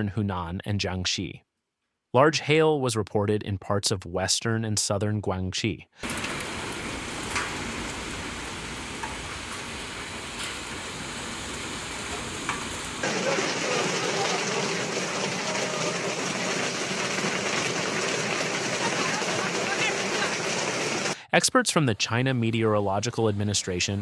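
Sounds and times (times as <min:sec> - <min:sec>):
wind: 0:06.0 - 0:13.1
heavy rain: 0:06.0 - 0:21.2.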